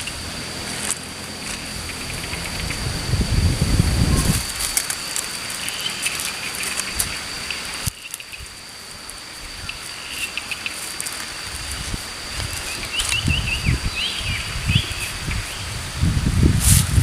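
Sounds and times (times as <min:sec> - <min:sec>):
high-pitched insect drone: 0:00.0 - 0:17.0
sharp crackles and clicks: 0:04.1 - 0:13.2.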